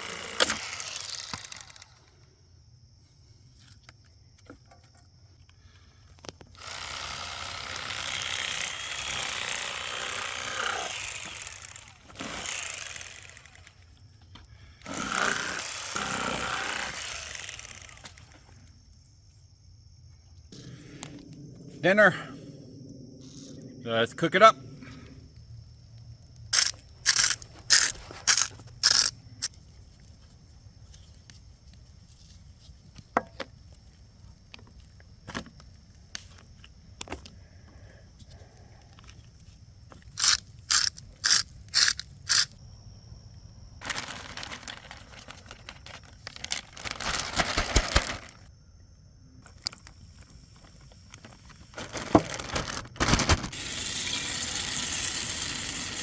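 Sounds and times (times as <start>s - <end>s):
sharp scraping strokes: 26.6s - 29.2s, 40.1s - 42.5s
rustling: 43.8s - 48.5s, 50.6s - 53.6s
fish frying in hot oil: 53.5s - 56.0s.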